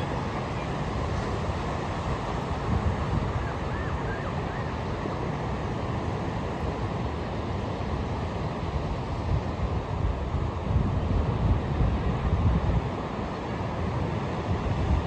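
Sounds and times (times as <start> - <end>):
wind buffeting microphone: 0.0 - 6.5, 8.8 - 13.2
ocean surf washing onto beach: 0.0 - 15.0.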